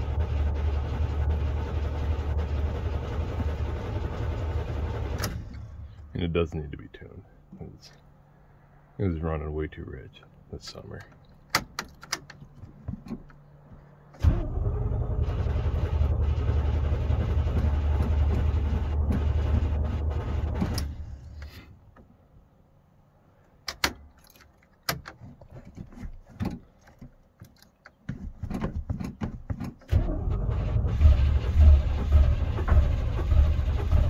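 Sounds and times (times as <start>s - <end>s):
engine cranking: 14.2s - 21.5s, 29.0s - 34.0s.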